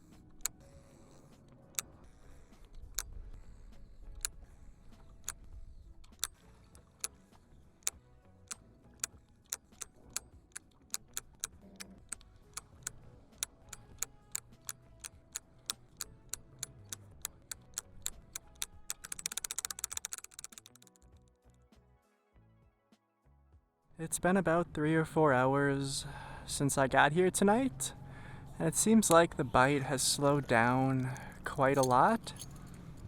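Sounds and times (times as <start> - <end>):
sharp ticks quickening into rattle: 0.0 - 21.3.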